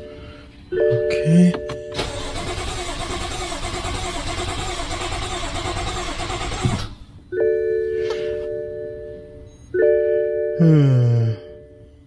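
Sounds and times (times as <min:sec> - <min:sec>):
car engine running: 0:01.4 - 0:07.2.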